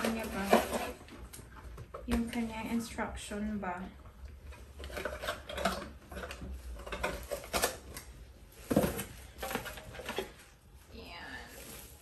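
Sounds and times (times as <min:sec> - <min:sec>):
paper and cardboard rustling: 0:00.0 - 0:02.8.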